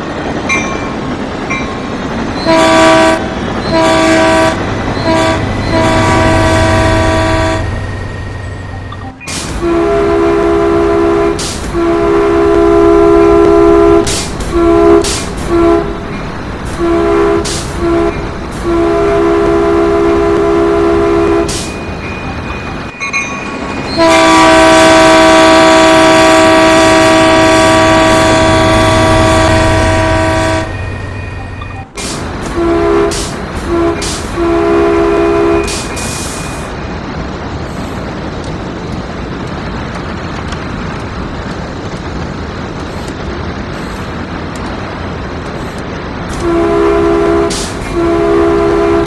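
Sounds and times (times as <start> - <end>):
steady train rumble: 0.0 - 49.0
train horn blasts: 2.4 - 16.1, 16.7 - 21.8, 23.9 - 36.6, 46.3 - 49.0.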